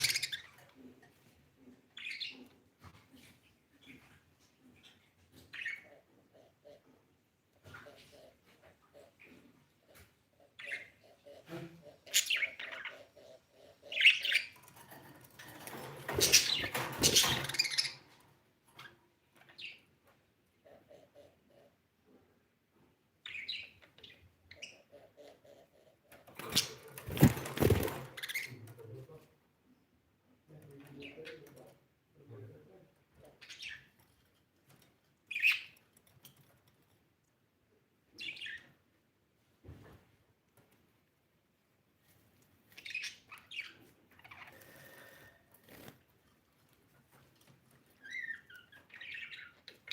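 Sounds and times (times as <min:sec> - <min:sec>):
budgerigar chirping: 0:10.5 - 0:14.6.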